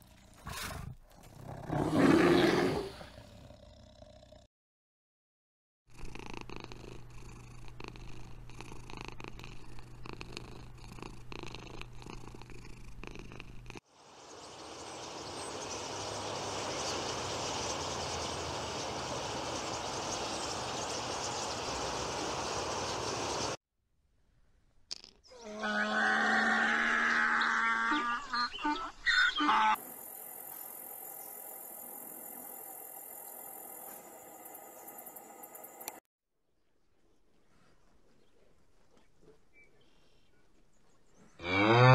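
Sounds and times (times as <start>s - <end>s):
cats purring: 5.9s - 13.8s
flock of small birds: 14.0s - 23.6s.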